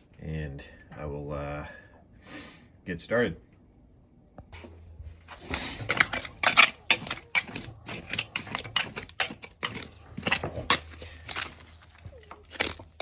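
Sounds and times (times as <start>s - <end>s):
gritty scraping of dirt: 4.6s - 13.0s.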